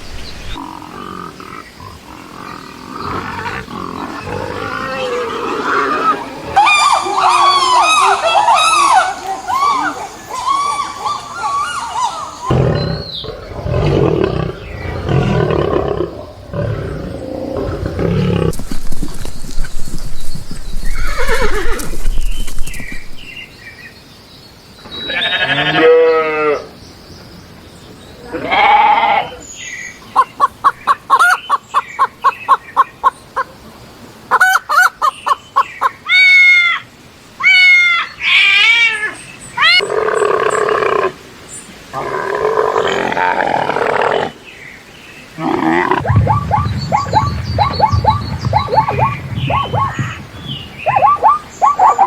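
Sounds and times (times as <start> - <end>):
animal calls: 0.6 - 19.7, 45.4 - 52.0.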